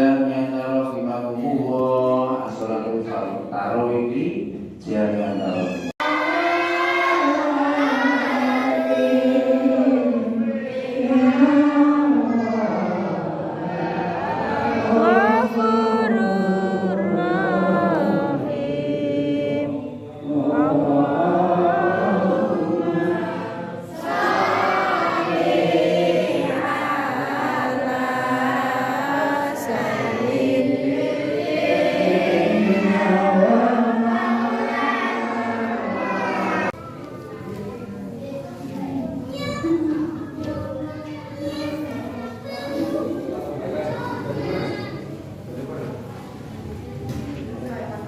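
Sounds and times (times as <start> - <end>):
congregation chanting in unison: 0.0 - 36.8.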